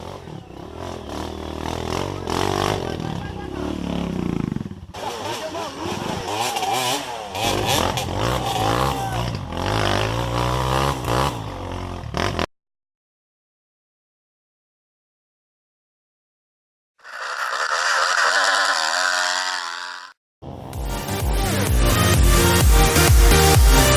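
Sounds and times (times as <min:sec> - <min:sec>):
motorcycle engine revving: 0:00.0 - 0:12.5, 0:17.0 - 0:20.6.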